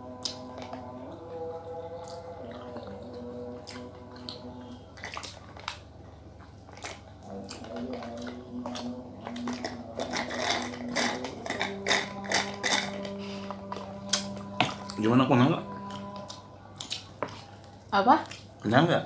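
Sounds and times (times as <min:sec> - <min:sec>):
soft background music: 0:00.0 - 0:19.0
wet mouth eating sounds: 0:00.1 - 0:15.0, 0:15.8 - 0:18.7.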